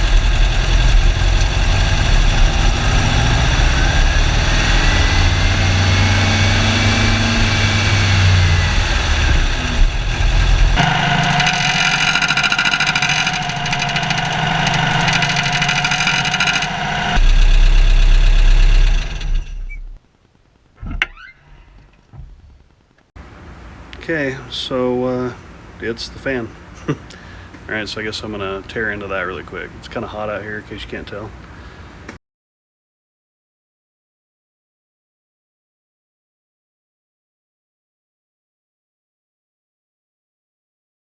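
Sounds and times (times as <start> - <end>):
car engine revving: 0.0 - 20.0
high-pitched squealing whine: 0.0 - 20.0, 20.8 - 22.1.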